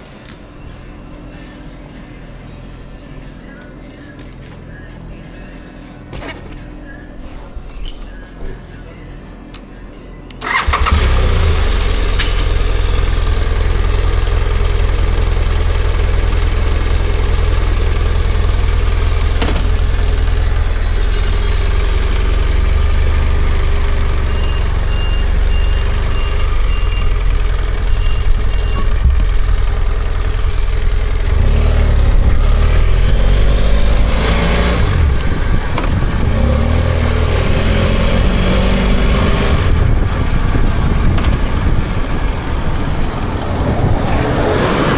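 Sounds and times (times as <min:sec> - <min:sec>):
motorcycle engine idling: 0:10.4 - 0:44.3
motorcycle revving and shifting gears: 0:10.5 - 0:44.9.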